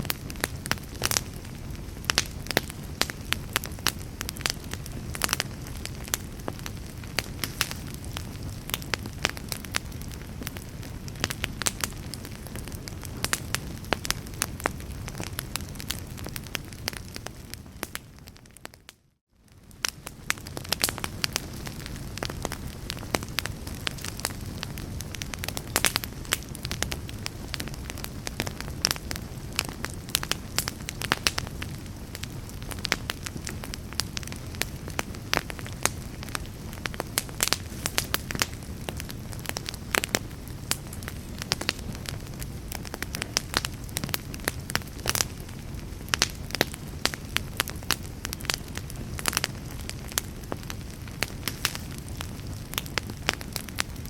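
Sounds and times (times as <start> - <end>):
rush of flame: 0.0 - 18.2, 19.5 - 54.0
wood fire crackling and popping: 0.0 - 54.0.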